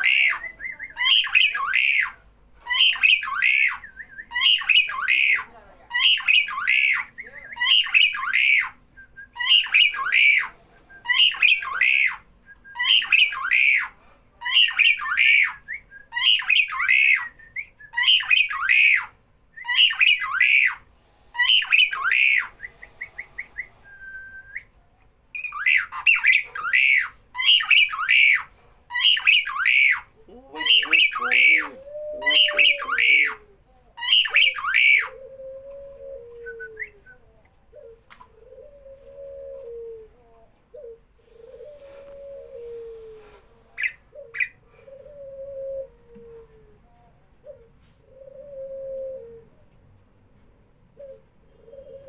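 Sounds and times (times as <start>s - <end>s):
starling squawking: 0.0s - 8.8s, 9.4s - 15.6s, 16.2s - 17.4s, 18.0s - 23.8s, 25.4s - 35.2s.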